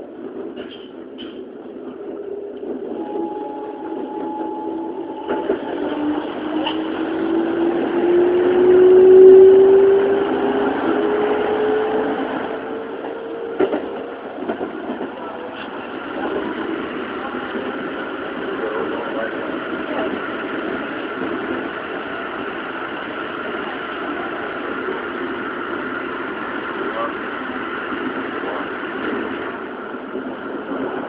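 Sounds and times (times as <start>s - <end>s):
train inverter and motors whining: 2.0s - 30.8s
wheel and rail running noise: 10.0s - 31.0s.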